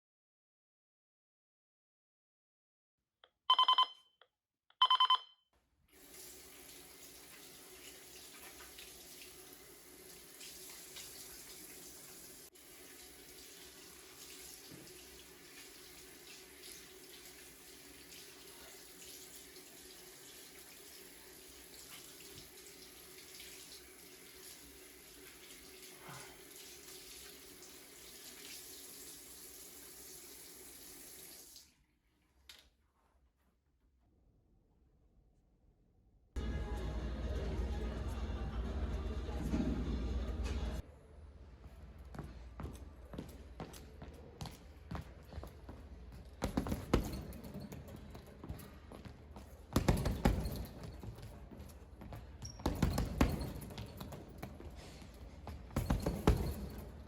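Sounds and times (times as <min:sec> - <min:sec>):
short electronic beeps: 0:03.4 - 0:04.2, 0:04.8 - 0:05.4
water running from a tap: 0:06.0 - 0:31.8.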